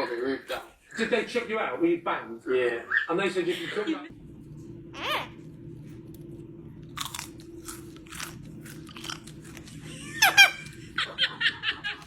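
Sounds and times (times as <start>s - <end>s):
parrot squawk: 5.0s - 5.4s, 10.1s - 10.7s
parrot crunching with beak: 6.8s - 10.8s.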